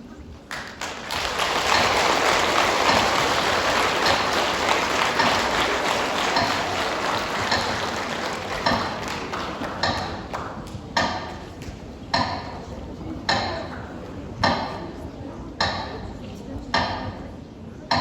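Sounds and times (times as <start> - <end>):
audience applauding: 0.5 - 10.8.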